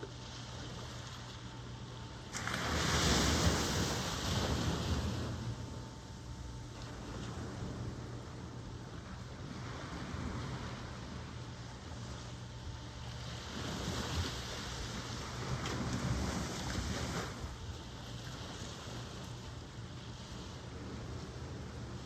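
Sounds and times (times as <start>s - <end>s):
low rumble of the sea: 0.0s - 22.0s
wave washing in: 2.3s - 5.7s.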